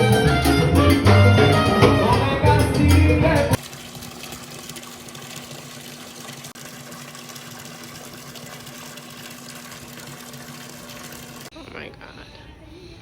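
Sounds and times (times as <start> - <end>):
latin music: 0.0 - 3.6.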